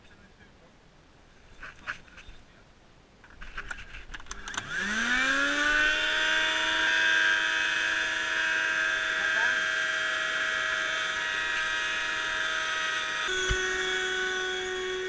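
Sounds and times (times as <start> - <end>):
vacuum cleaner motor whine: 4.5 - 15.0.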